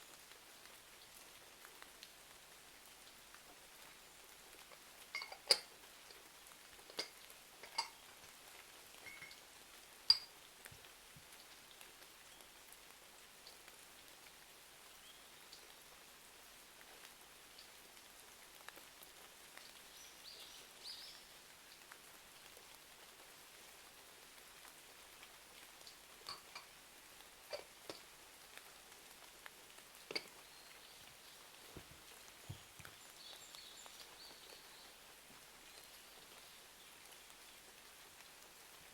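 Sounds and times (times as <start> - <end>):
steady rain: 0.0 - 38.9
sharp pops and clicks: 10.1 - 10.3, 30.1 - 30.4.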